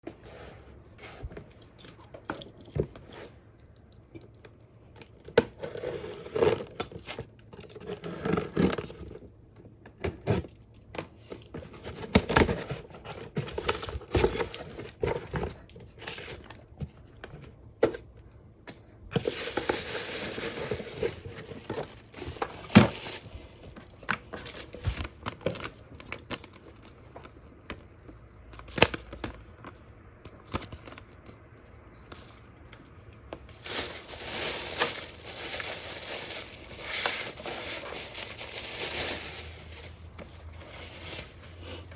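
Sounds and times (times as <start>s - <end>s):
packaging crinkling: 19.1s - 27.0s, 33.3s - 41.9s
packaging tearing: 33.5s - 41.6s.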